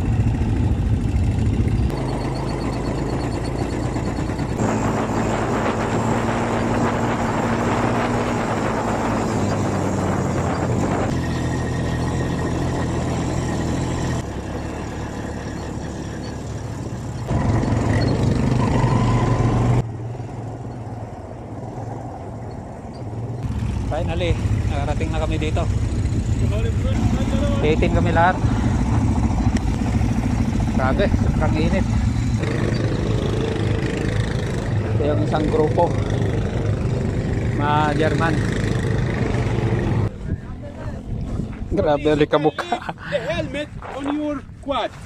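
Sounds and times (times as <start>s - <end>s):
quad bike engines running: 0.0s - 42.3s
wind noise: 3.5s - 13.8s, 38.3s - 45.0s.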